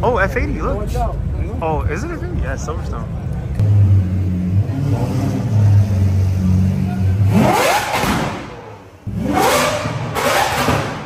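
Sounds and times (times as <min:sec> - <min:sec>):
car engine revving hard: 0:03.6 - 0:11.0.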